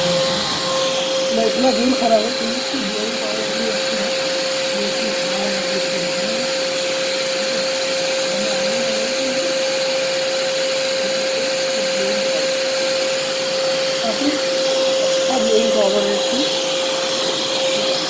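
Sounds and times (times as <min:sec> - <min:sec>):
air blowing through hose: 0:00.0 - 0:12.4
vacuum cleaner motor whining: 0:00.0 - 0:18.0.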